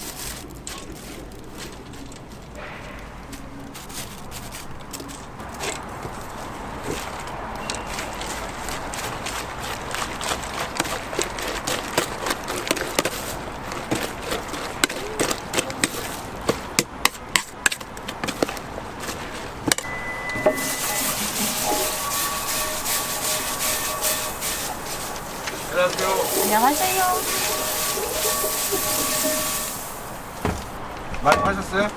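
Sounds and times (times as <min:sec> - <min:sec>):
griddle sizzling: 0:19.8 - 0:30.8.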